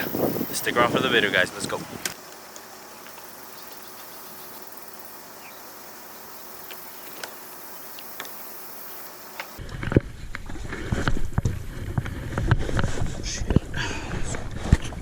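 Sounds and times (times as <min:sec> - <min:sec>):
insect chorus: 0:00.0 - 0:09.6.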